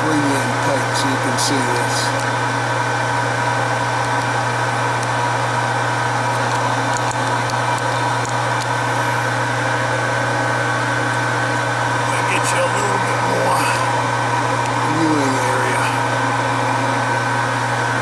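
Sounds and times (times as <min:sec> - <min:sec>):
high whine: 0:11.8 - 0:17.3.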